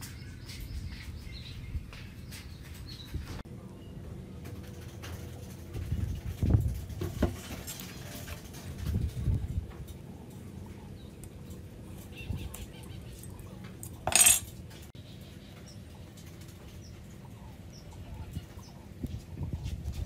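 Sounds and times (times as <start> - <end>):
metallic tool clatter: 13.9 - 14.5.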